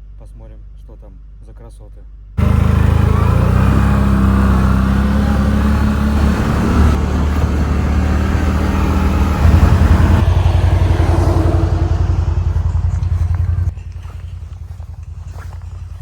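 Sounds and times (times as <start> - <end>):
quad bike engine running: 2.4 - 16.0.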